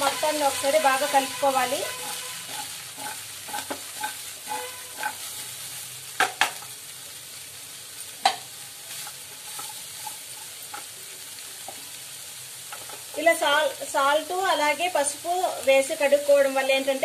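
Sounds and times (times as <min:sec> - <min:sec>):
spatula stirring and scraping: 0:00.0 - 0:06.7, 0:08.9 - 0:10.9
vegetables sizzling in oil: 0:00.0 - 0:17.0.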